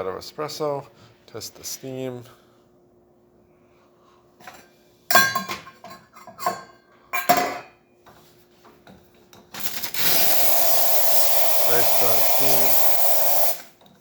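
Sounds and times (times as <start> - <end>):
dishware clinking: 5.1 - 7.8
espresso machine steam wand hissing: 10.0 - 13.6.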